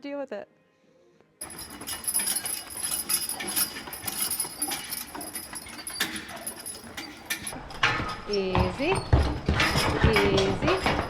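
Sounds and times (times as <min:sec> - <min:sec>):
harness jingling and clinking: 0:01.4 - 0:08.2, 0:08.9 - 0:11.0
hoof clops: 0:01.4 - 0:11.0.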